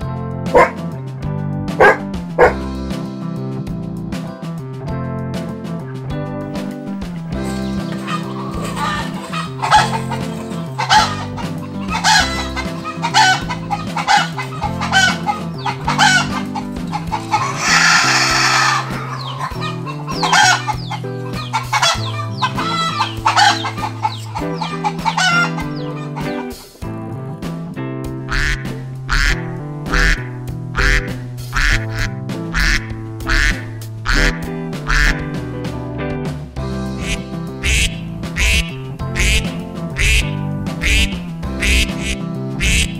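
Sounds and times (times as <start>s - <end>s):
background music: 0.0s - 42.9s
ducks quacking: 0.5s - 0.8s, 1.8s - 2.6s, 7.3s - 26.8s, 28.2s - 35.3s, 36.9s - 42.9s
chickens clucking: 7.3s - 26.7s, 28.3s - 35.3s, 36.9s - 42.9s.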